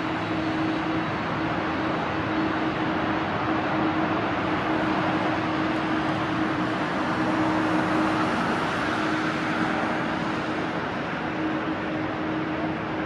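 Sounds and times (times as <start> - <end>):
jet engines rushing: 0.0 - 13.0.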